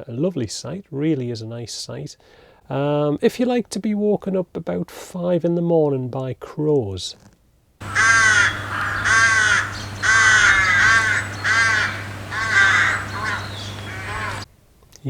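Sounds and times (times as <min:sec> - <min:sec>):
crows cawing: 0:07.8 - 0:14.5
low steady hum: 0:07.8 - 0:14.8.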